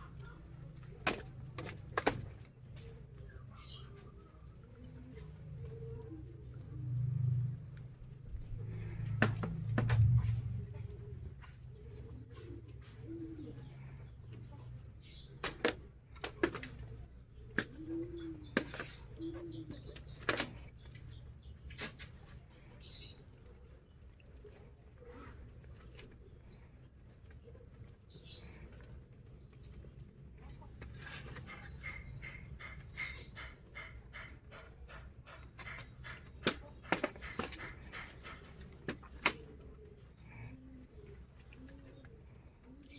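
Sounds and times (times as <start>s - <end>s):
doves cooing: 0.0s - 42.9s.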